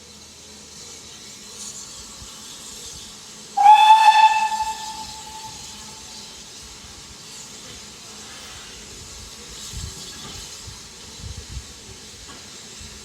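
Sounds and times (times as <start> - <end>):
steam hissing: 0.0 - 13.0
steam locomotive whistle: 3.6 - 6.5.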